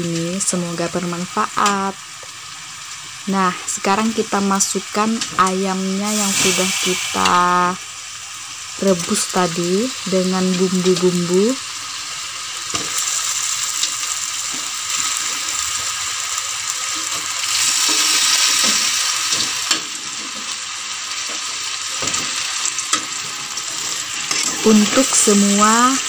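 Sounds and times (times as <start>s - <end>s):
chicken sizzling in a wok: 0.0s - 26.0s
metal spatula scraping wok: 23.7s - 25.2s.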